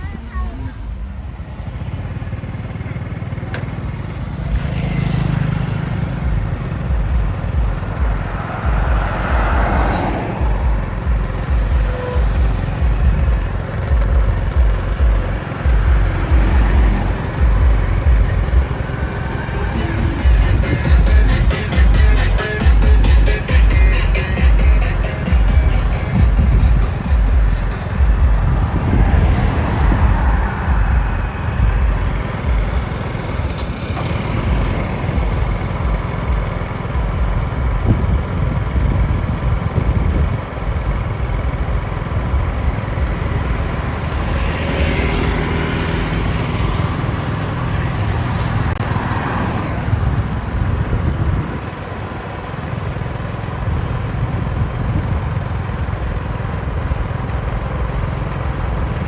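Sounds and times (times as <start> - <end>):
engine passing by: 0.0 - 55.2.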